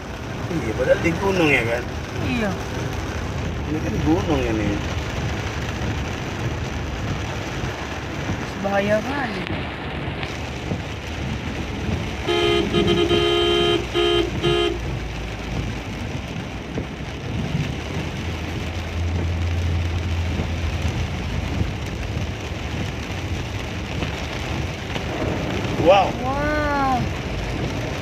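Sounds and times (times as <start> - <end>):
heavy rain: 0.0 - 28.0
vehicle horn honking: 12.2 - 14.8.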